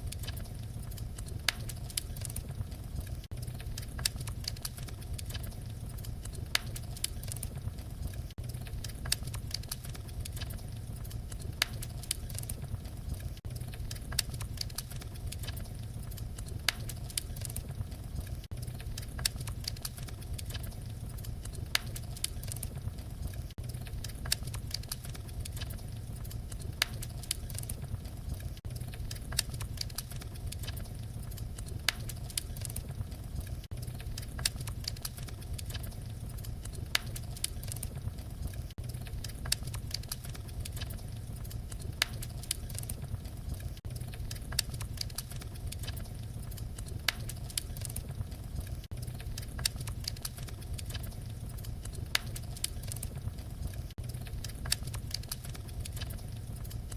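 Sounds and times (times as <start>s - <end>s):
low rumble of flames: 0.0s - 56.9s
wood fire crackling: 0.0s - 56.9s.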